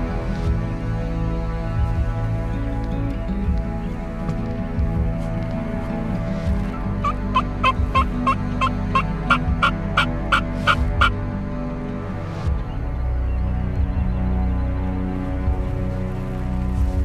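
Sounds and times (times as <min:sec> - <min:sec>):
turkey yelping: 0:07.0 - 0:11.1.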